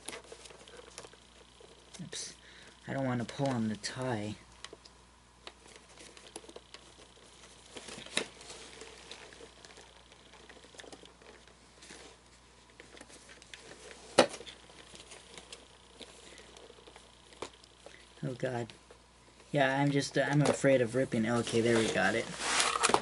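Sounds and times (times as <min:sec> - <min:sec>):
cloth rustling: 0:21.2 - 0:23.0.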